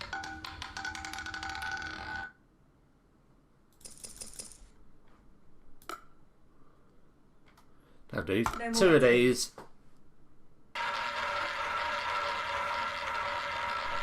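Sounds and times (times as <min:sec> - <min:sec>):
roulette ball rattling on wheel: 0:00.0 - 0:02.4, 0:10.8 - 0:14.0.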